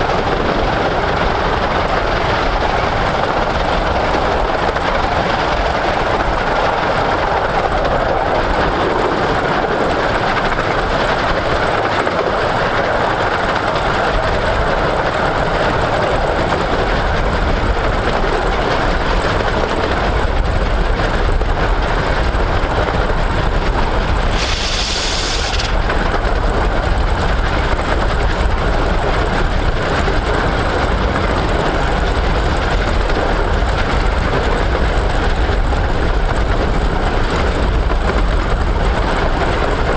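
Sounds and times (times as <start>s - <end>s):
steam train running: 21.5s - 31.0s
steam hiss: 23.7s - 26.1s.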